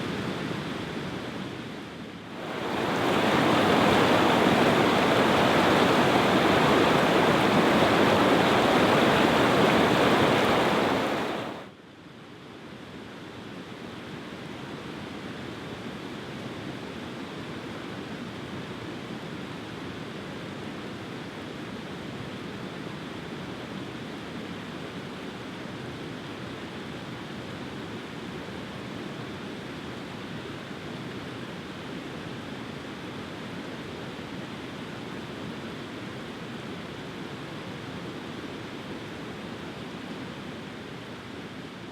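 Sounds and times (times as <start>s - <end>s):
rushing water: 2.4s - 11.7s.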